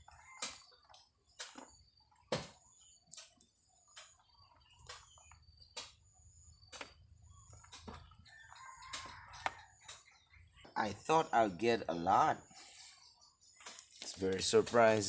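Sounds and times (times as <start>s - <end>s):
rooster crowing: 8.2s - 10.0s.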